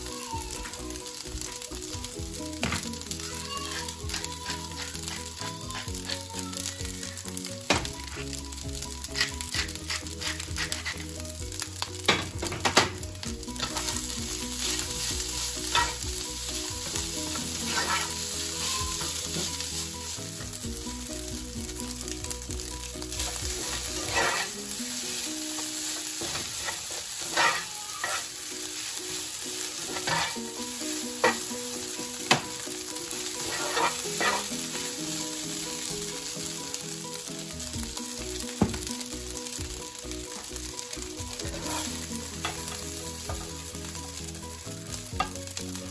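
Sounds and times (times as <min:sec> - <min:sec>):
rice sizzling in a frying pan: 0:00.0 - 0:45.9
spatula scraping a pan: 0:02.8 - 0:06.4, 0:09.0 - 0:11.4, 0:13.5 - 0:20.6, 0:23.1 - 0:36.1, 0:41.2 - 0:43.6.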